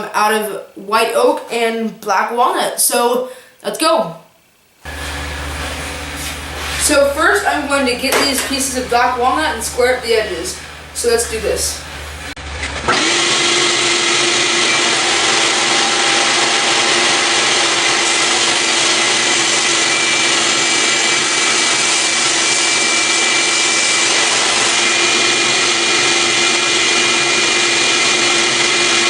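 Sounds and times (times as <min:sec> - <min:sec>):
motor hum: 0:04.8 - 0:26.9
power saw cutting wood: 0:04.9 - 0:29.0.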